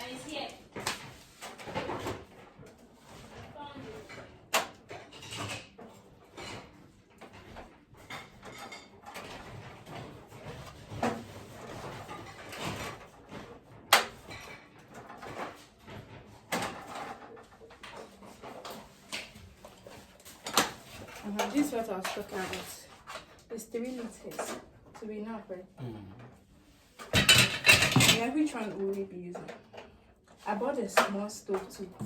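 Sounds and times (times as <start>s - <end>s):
knocks and clatters: 27.0s - 28.3s.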